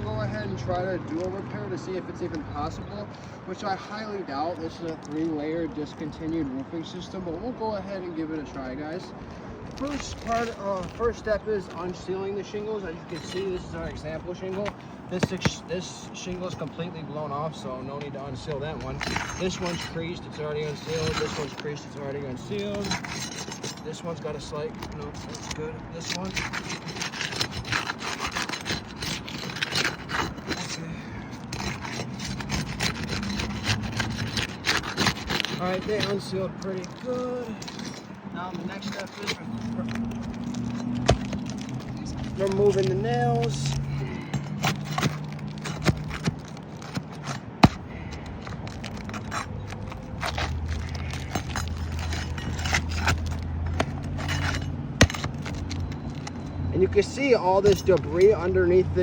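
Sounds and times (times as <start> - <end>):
roof shingles scraping loose: 9.7 - 16.8, 18.2 - 58.4
metal tool prying nails: 18.8 - 21.8, 22.4 - 56.5.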